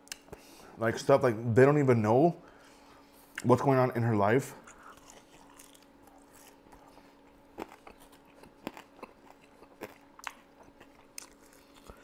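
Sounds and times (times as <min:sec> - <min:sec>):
faint steady hum: 0:00.0 - 0:12.0
person chewing chicken wings: 0:04.6 - 0:12.0.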